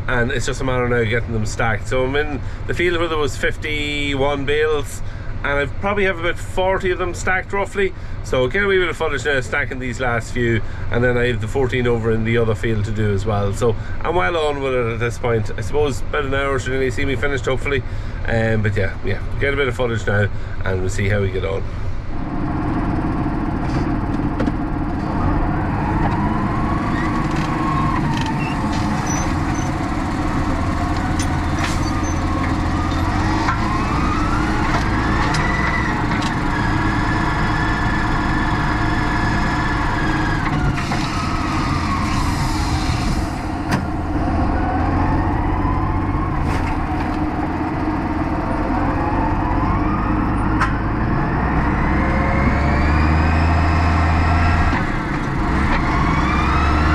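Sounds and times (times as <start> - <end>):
tractor engine whining: 20.7 - 56.9.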